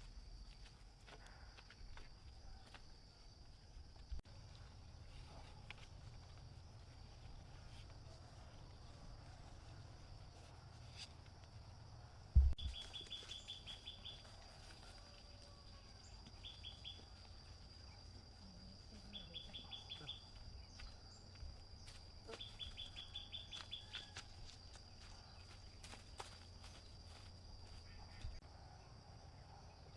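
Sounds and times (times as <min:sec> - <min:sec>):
low thump: 0:12.4 - 0:12.7
bird chirping trills: 0:12.6 - 0:14.3, 0:16.4 - 0:17.2, 0:22.4 - 0:23.9.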